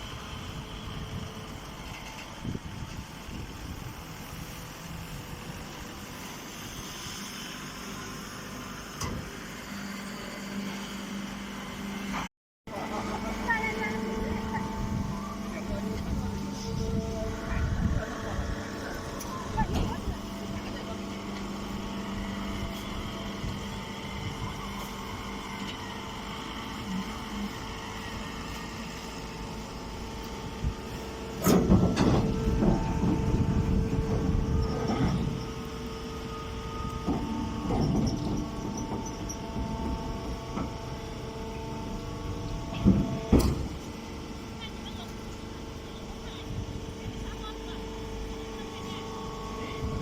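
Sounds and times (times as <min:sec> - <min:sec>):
baling machinery running: 0:00.0 - 0:50.0.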